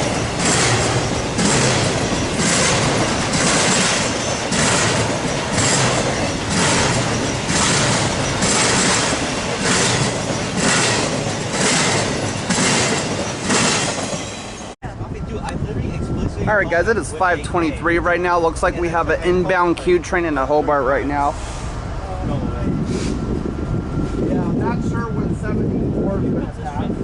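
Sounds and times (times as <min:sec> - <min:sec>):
train wheels clattering on rails: 0:00.0 - 0:14.8.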